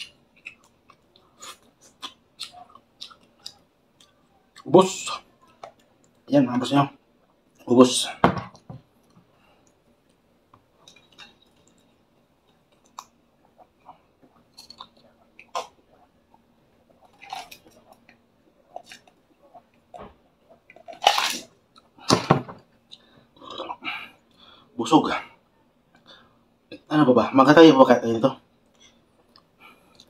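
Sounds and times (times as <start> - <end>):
man chewing: 0.0 - 6.2, 9.0 - 24.6, 28.6 - 30.0.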